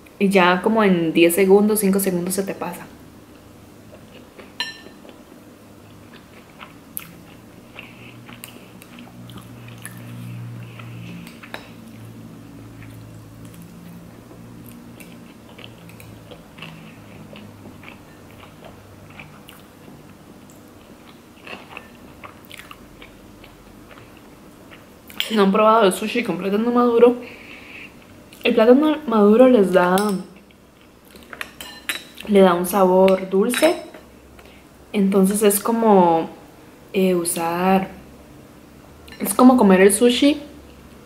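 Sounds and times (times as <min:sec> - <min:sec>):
chewing with crunches: 0:05.8 - 0:25.3.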